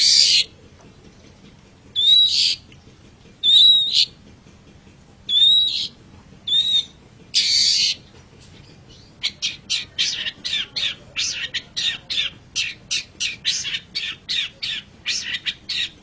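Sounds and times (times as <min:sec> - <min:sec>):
shrike harsh calls: 0:00.0 - 0:00.5, 0:02.0 - 0:02.7, 0:03.4 - 0:04.2, 0:05.3 - 0:16.0
bird chattering notes: 0:00.0 - 0:16.0.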